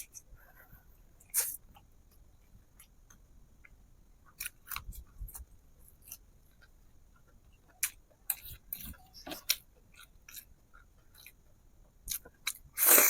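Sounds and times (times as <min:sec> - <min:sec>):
person chewing food: 0:01.2 - 0:13.0.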